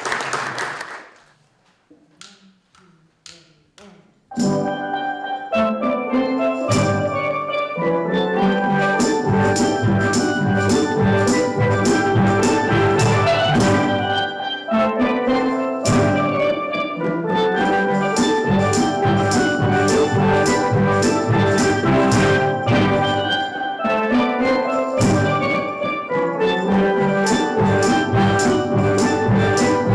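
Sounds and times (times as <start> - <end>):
steel drum band playing: 6.4 - 29.9
steady drum beat: 9.0 - 14.1, 18.2 - 23.4.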